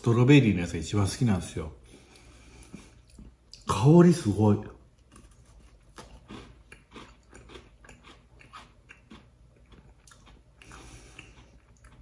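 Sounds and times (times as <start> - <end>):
person crunching a cookie: 4.9 - 12.0.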